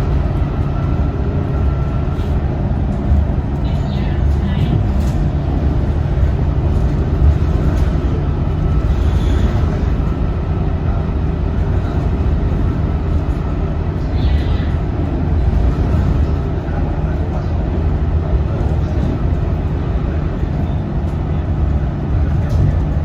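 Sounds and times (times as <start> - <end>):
bus diesel engine drone: 0.0 - 23.0.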